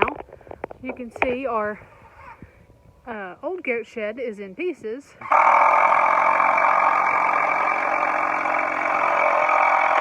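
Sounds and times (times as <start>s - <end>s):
motor running steadily: 5.2s - 10.0s.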